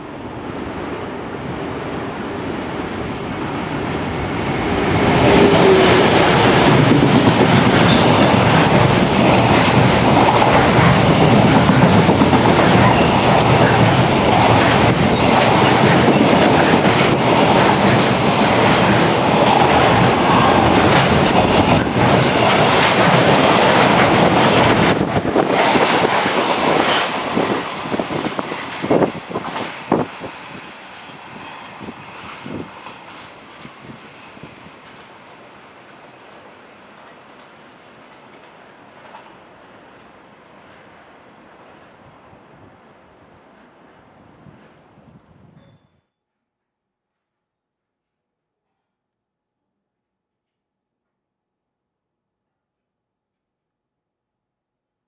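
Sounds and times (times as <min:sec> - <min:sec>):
freight train rumbling: 0:00.0 - 0:45.7
wheels clacking over rail joints: 0:05.2 - 0:30.0.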